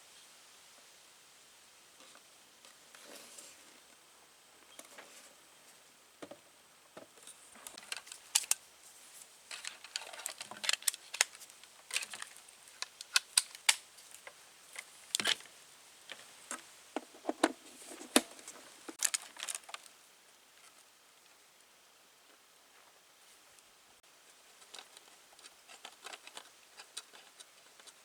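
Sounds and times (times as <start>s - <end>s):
soft rustling: 2.0s - 4.0s, 13.9s - 20.0s.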